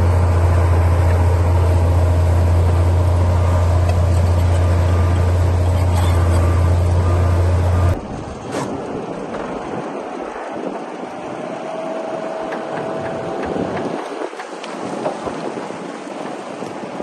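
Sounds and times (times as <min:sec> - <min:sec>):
thin machine noise: 0:00.0 - 0:08.0
bulldozer diesel engine droning: 0:00.0 - 0:08.4, 0:09.0 - 0:14.9.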